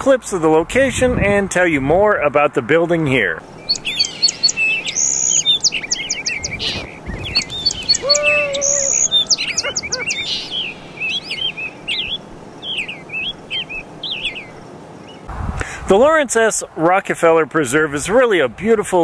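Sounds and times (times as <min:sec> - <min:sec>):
birds chirping: 0:03.0 - 0:15.3
long low bird call: 0:03.5 - 0:15.3.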